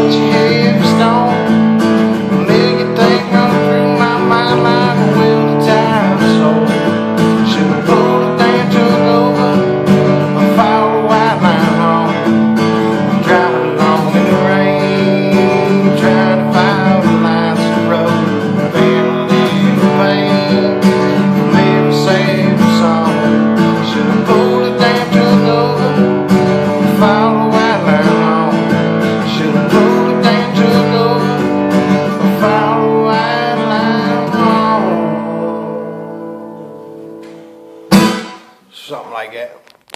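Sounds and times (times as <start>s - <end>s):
acoustic guitar playing: 0.0s - 39.9s.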